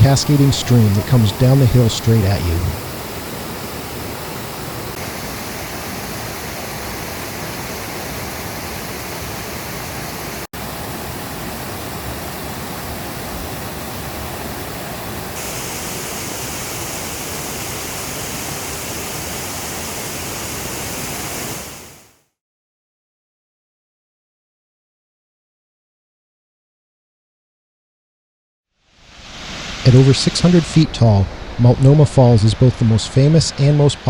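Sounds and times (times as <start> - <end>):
rushing waterfall: 0.0 - 22.2, 28.9 - 34.0.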